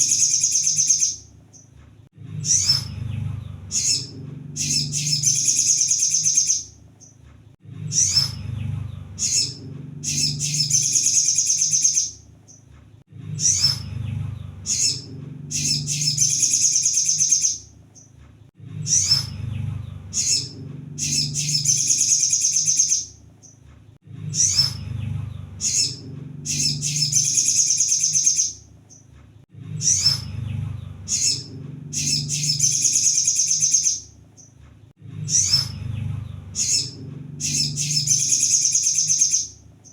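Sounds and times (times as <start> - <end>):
bird song with high trill: 0.0 - 1.7, 2.4 - 7.2, 7.8 - 12.7, 13.3 - 18.2, 18.8 - 23.6, 24.2 - 29.1, 29.7 - 34.6, 35.2 - 39.9
low rumble: 2.0 - 5.5, 6.7 - 11.1, 12.2 - 16.4, 18.5 - 21.9, 24.0 - 27.4, 29.4 - 32.8, 34.9 - 38.3.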